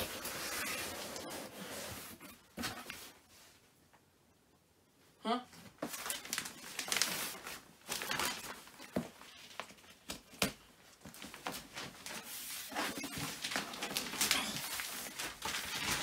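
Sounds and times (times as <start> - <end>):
plastic wrapping rustling and tearing: 0.0 - 2.1, 5.8 - 10.1, 11.0 - 16.0.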